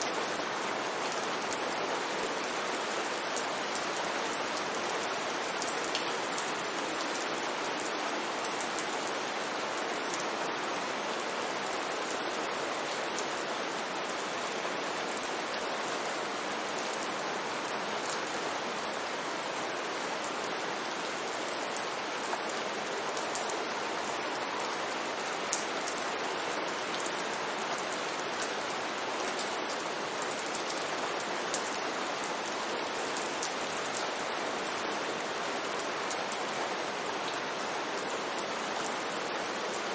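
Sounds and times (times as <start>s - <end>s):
steady rain hiss: 0.0s - 39.9s
raindrops clicking on hard surfaces: 5.6s - 9.1s.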